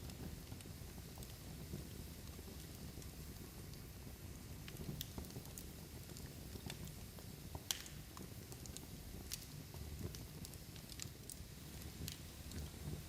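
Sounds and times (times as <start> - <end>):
log fire crackling and popping: 0.0 - 13.0
low rumble of flame: 0.0 - 13.0.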